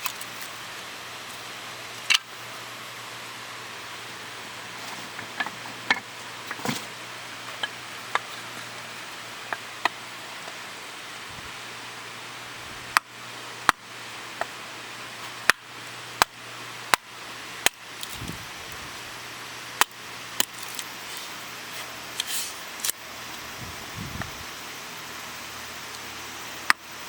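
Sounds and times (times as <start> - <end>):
steady hiss: 0.0 - 27.0.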